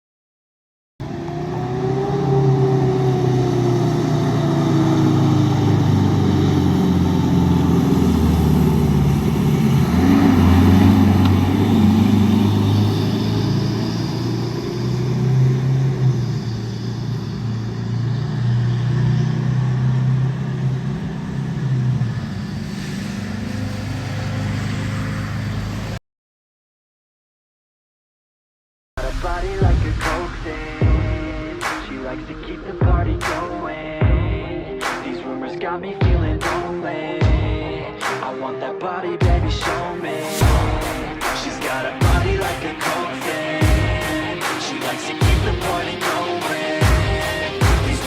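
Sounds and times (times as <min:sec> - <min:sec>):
fire engine siren: 0:01.0 - 0:26.0
truck engine running: 0:01.0 - 0:26.0, 0:39.2 - 0:48.0.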